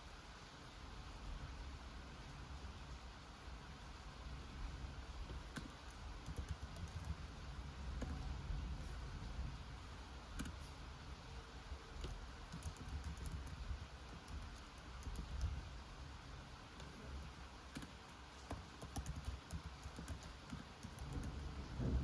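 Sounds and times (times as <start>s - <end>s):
low background rumble: 0.1s - 22.0s
computer keyboard typing: 5.4s - 7.3s, 10.4s - 10.7s, 12.0s - 15.6s, 16.7s - 21.4s.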